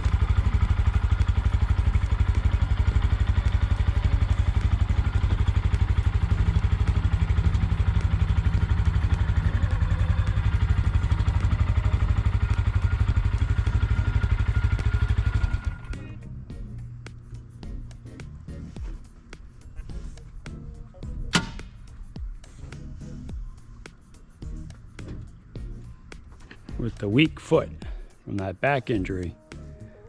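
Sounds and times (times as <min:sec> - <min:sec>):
motorcycle engine running: 0:00.0 - 0:29.8.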